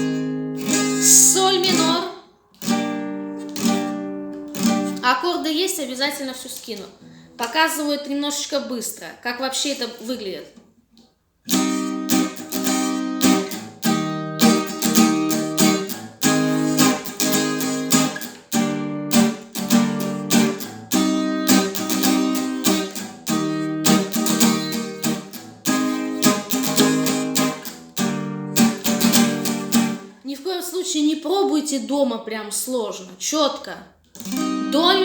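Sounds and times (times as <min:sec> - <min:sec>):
acoustic guitar strumming: 0:00.0 - 0:05.1, 0:11.5 - 0:30.1, 0:34.2 - 0:35.0.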